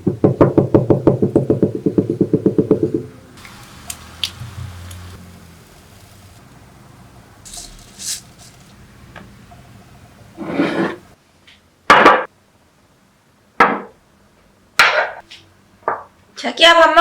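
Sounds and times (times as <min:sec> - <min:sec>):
dish scraping on table: 0:10.4 - 0:11.2
dishes knocking on wooden table: 0:11.9 - 0:12.3, 0:13.6 - 0:14.0.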